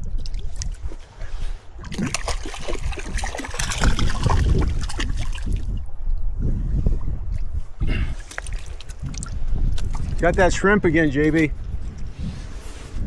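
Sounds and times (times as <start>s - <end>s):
river water trickling and splashing: 0.0s - 1.2s, 1.8s - 5.8s, 8.1s - 11.5s.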